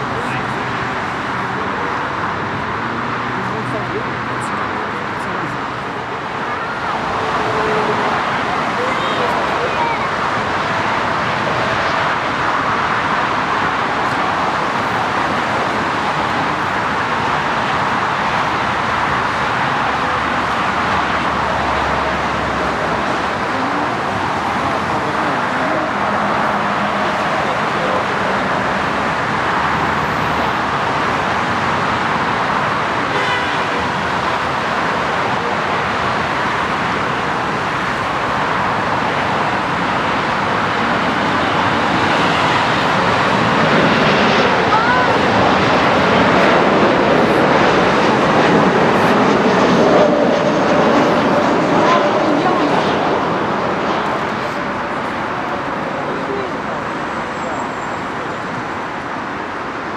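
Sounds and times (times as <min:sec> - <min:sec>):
jet engine roar: 0:00.0 - 0:59.9.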